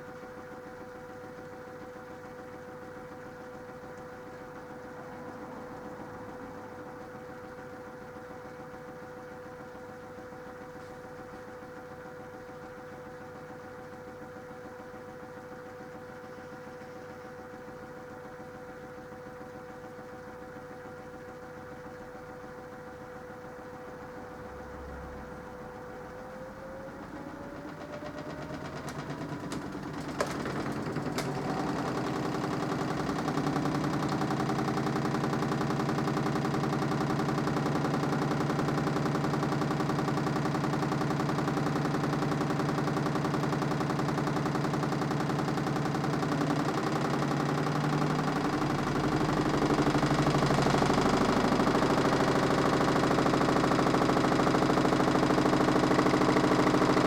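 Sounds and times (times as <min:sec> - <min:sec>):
washing machine motor humming: 0:00.0 - 0:57.0.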